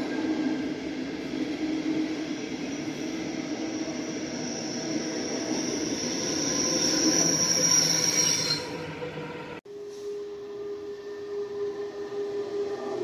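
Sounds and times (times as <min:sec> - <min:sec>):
electric locomotive whine: 0:00.0 - 0:13.0.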